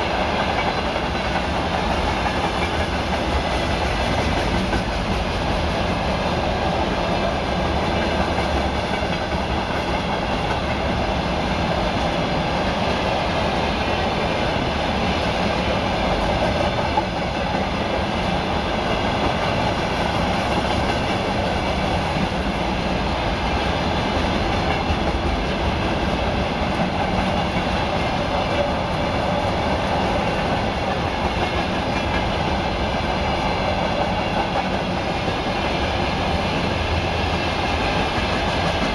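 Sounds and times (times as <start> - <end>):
freight wagons rumbling on rails: 0.0 - 38.9.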